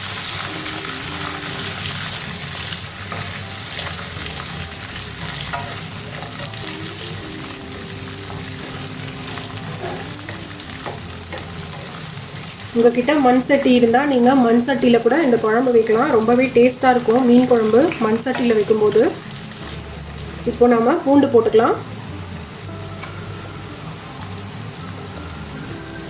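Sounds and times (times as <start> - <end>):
onions sizzling in hot oil: 0.0 - 26.0
spoon stirring and knocking pan: 1.8 - 22.0.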